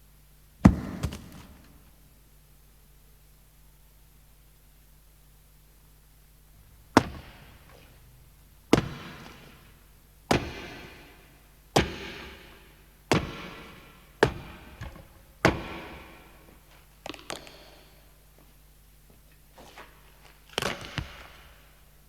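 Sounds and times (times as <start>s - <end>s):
sharp echoing bangs: 8.7s - 12.2s.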